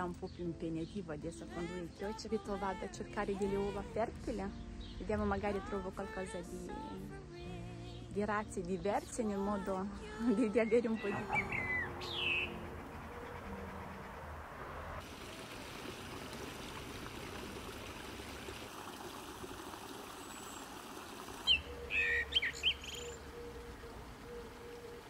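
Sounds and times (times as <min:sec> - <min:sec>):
high bird chirps: 0:10.6 - 0:14.5, 0:21.4 - 0:24.9.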